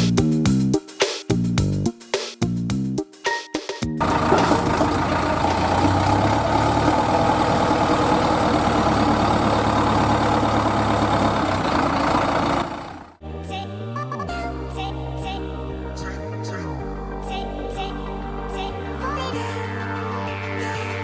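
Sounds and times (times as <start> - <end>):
vehicle engine rumbling: 4.0 - 13.2.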